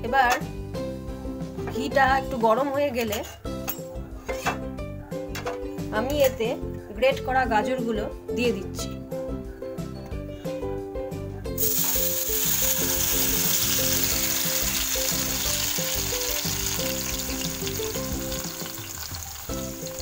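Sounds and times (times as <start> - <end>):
background music: 0.0 - 20.0
carrot sizzling in hot fat: 11.6 - 20.0.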